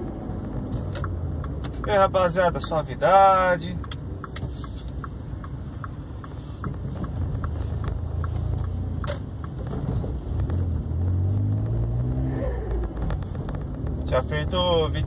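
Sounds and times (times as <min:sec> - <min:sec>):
light regular ticking: 0:00.5 - 0:11.2
car engine pulling away: 0:08.0 - 0:15.0.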